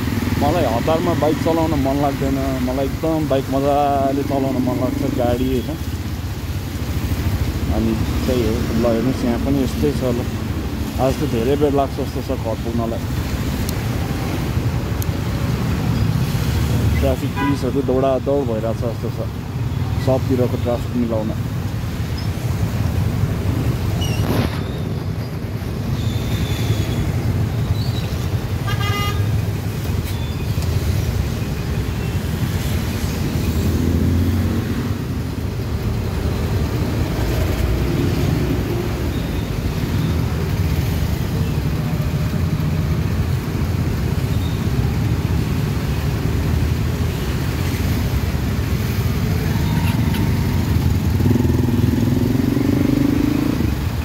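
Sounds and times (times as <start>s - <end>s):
road traffic rumble: 0.0s - 54.0s
vehicle horn toot: 28.6s - 29.3s.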